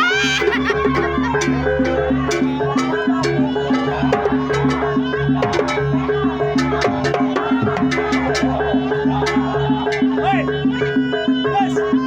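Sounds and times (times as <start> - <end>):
gamelan ensemble playing: 0.0 - 10.6
sharp drum strikes: 1.0 - 10.4.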